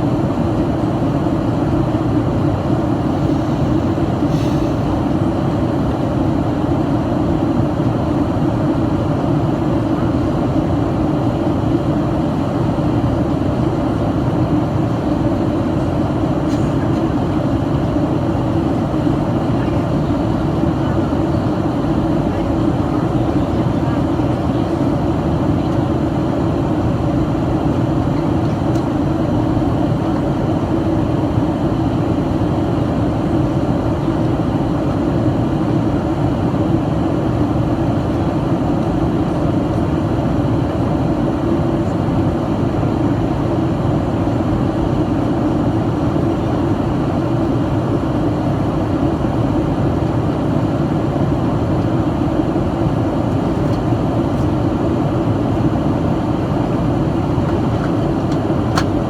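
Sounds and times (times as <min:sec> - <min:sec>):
airplane cabin engine roar: 0:00.0 - 0:59.0
airflow over fuselage: 0:01.4 - 0:06.7, 0:41.5 - 0:59.0.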